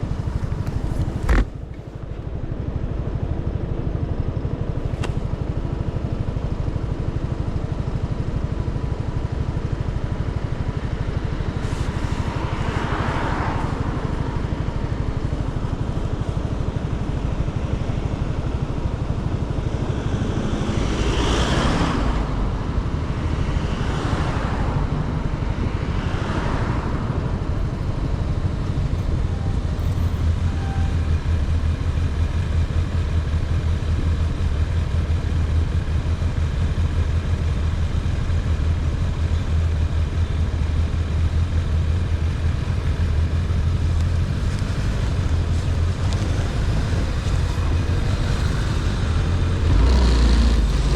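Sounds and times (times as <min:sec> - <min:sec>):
motorcycle engine rumbling: 0:00.0 - 0:02.0, 0:27.4 - 0:50.9
passing traffic: 0:00.0 - 0:50.9.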